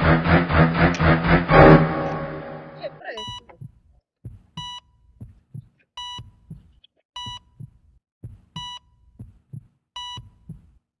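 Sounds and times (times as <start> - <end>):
heartbeat thumps: 0.0 - 10.8
heart monitor beeps: 3.0 - 3.7, 4.6 - 4.9, 6.0 - 6.6, 7.2 - 7.7, 8.6 - 8.9, 10.0 - 10.6.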